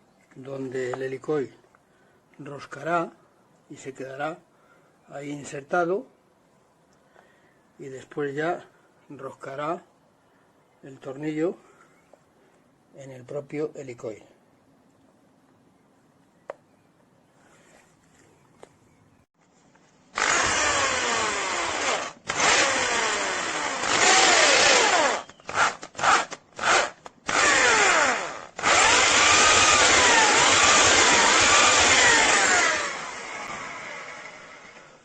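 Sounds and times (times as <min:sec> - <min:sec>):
electric drill boring into metal: 0:20.2 - 0:35.0.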